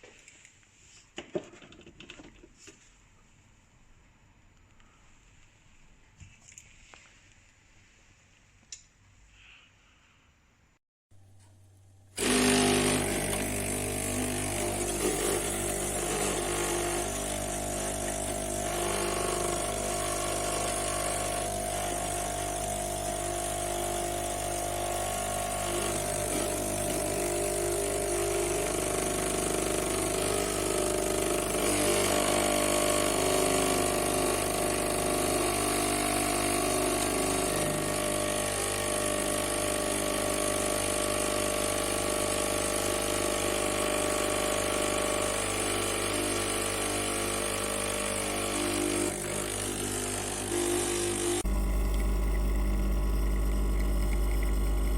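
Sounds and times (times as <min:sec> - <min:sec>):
espresso machine pump buzzing: 0:12.2 - 0:54.9.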